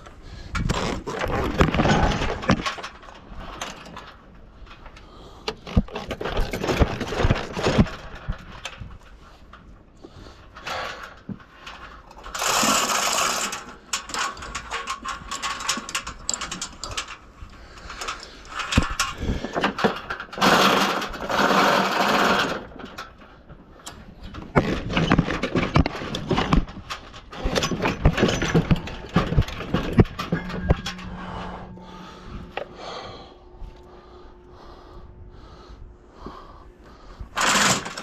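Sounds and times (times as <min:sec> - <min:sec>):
metal clanks and knocks: 0:00.6 - 0:04.2, 0:24.4 - 0:35.6.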